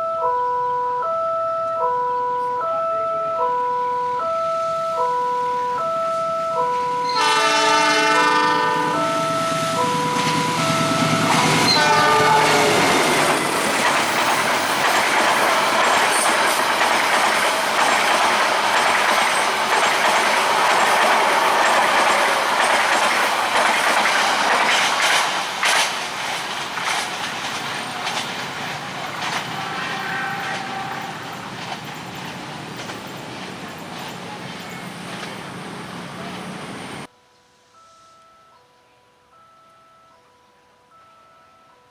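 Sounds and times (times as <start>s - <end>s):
train passing with clickety-clack: 3.4s - 37.1s
train horn: 6.1s - 16.6s, 29.3s - 31.5s.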